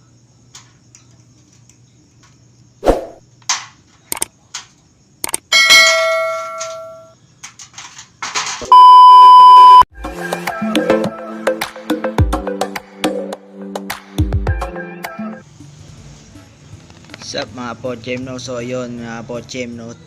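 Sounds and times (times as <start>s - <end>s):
loud metallic clang ringing: 5.5s - 7.0s
steady electronic beep: 8.7s - 9.9s.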